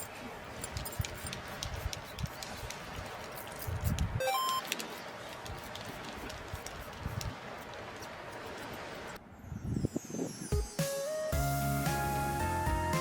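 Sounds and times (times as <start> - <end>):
wind buffeting microphone: 0.8 - 4.2
rising chime: 9.6 - 11.2.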